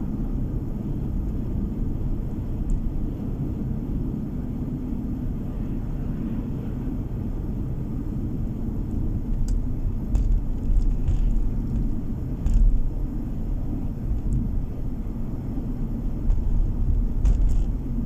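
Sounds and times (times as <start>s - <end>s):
car road and engine rumble: 0.0s - 18.0s
loud thump: 16.2s - 18.0s.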